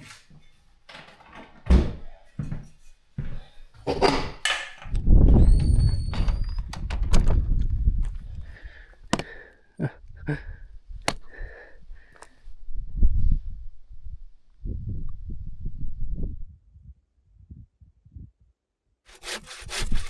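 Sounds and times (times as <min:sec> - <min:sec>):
knocks of firewood being handled: 0:09.0 - 0:09.5.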